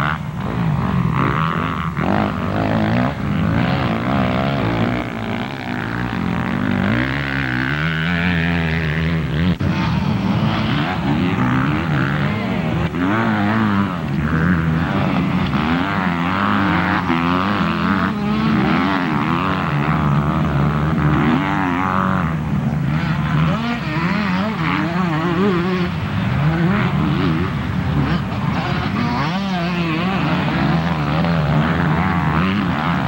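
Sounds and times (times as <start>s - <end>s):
motocross engines revving: 0.0s - 33.0s.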